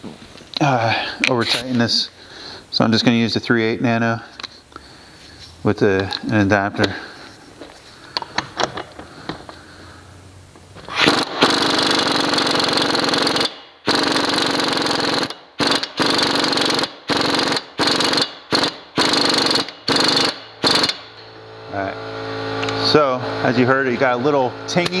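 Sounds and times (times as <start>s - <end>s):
impact wrench hammering: 10.9s - 21.4s.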